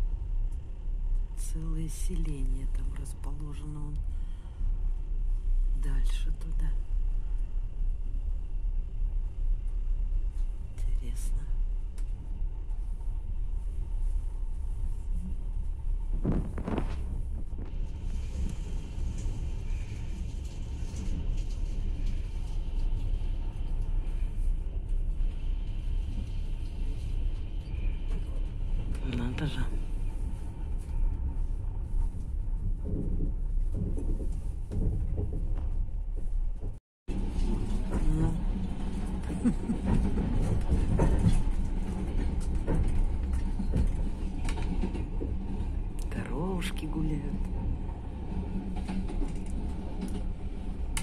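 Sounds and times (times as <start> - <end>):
train wheels rumbling on track: 0.0 - 51.0
clacks and knocks from running gear: 32.0 - 36.8.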